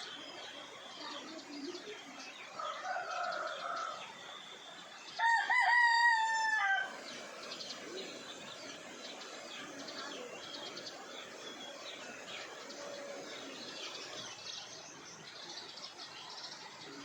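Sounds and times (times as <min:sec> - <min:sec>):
small birds chirping: 0:00.0 - 0:17.0
rooster crowing: 0:05.2 - 0:07.0.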